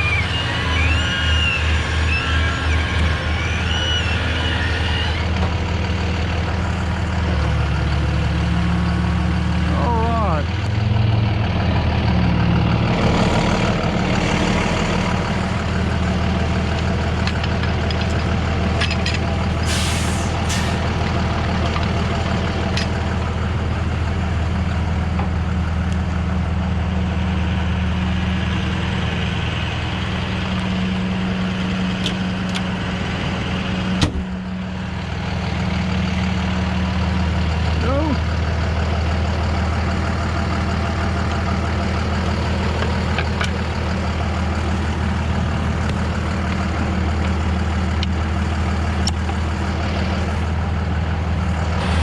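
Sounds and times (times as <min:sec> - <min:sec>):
heavy truck engine running: 0:00.0 - 0:52.0
short hisses: 0:19.6 - 0:20.8.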